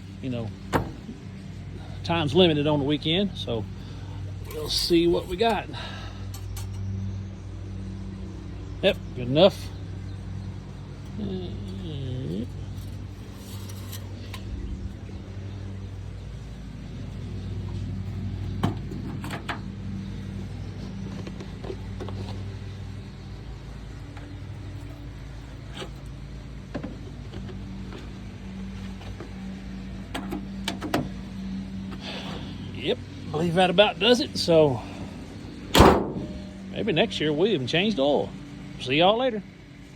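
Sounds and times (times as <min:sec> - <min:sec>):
low machine hum: 0:00.0 - 0:39.9
sharp clicks and knocks: 0:30.1 - 0:31.1.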